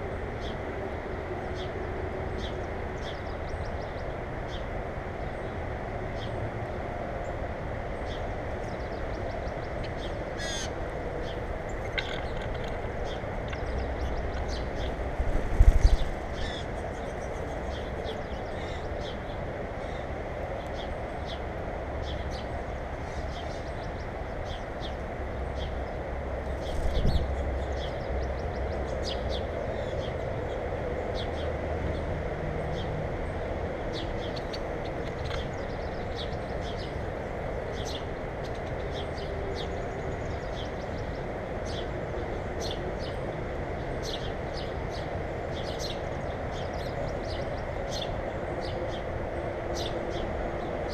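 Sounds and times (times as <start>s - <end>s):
small birds chirping: 8.0s - 21.4s, 22.0s - 31.5s, 32.7s - 41.9s
steady rushing noise: 12.7s - 18.0s, 26.2s - 27.6s.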